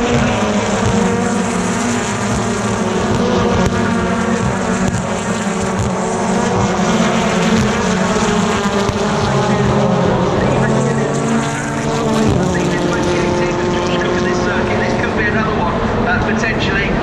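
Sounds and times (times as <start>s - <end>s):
racing cars passing: 0.0s - 17.0s.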